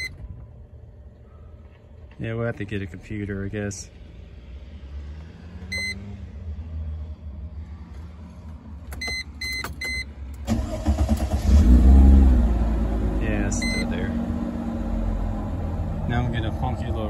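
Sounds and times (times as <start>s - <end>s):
car warning chime beeps: 0.0s - 0.3s, 5.7s - 6.0s, 8.9s - 10.1s, 13.5s - 14.0s
car engine cranking and starting: 7.8s - 17.0s.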